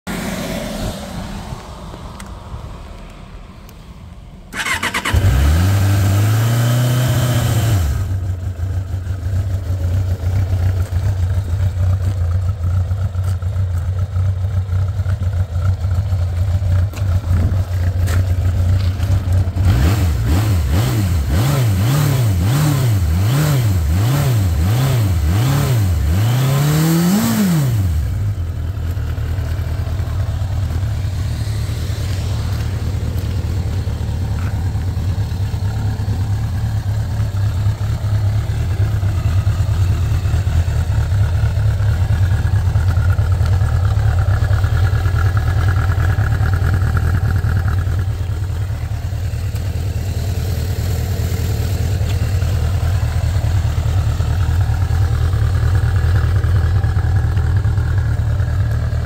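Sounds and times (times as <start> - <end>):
motorcycle engine idling: 4.5 - 5.2, 7.9 - 20.8, 27.9 - 59.0
engine starter cranking: 4.5 - 5.4.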